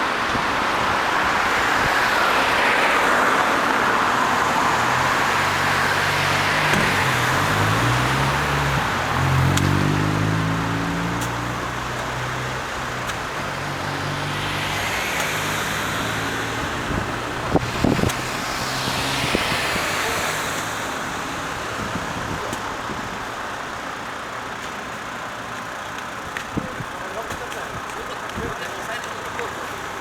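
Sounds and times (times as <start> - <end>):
tyre noise passing: 0.0 - 30.0
diesel engine low revs: 3.4 - 24.4.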